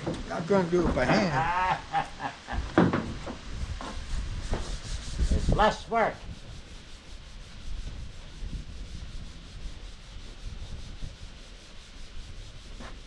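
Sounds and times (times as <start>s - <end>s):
sanding rasping scrub: 3.6s - 13.0s.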